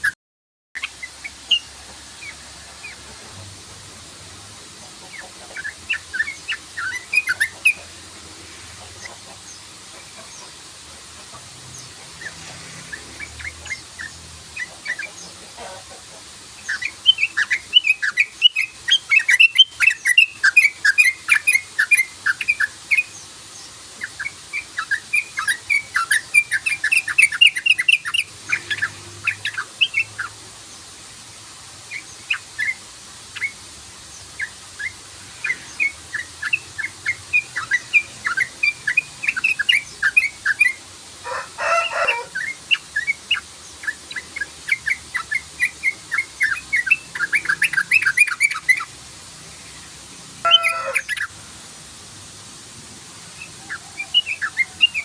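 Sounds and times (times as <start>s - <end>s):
bird singing rapid chattering song: 5.0s - 7.9s, 11.6s - 15.5s, 16.5s - 30.9s, 31.8s - 40.8s, 42.2s - 51.3s, 53.4s - 55.0s.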